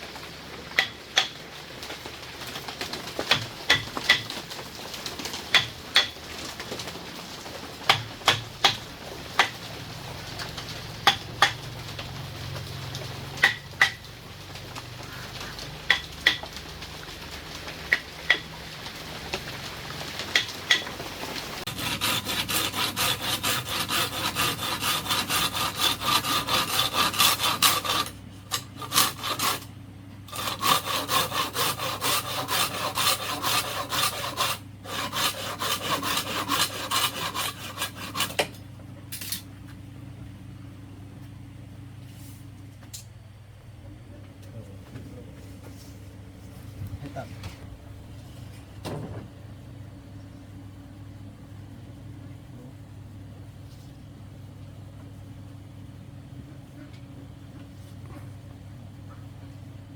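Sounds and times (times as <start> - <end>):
hand saw cutting bamboo: 0.8 - 1.4, 3.1 - 6.6, 7.8 - 9.7, 10.4 - 11.6, 12.6 - 14.0, 15.1 - 16.6, 17.6 - 18.6, 20.2 - 20.9, 21.6 - 29.7, 30.3 - 38.6.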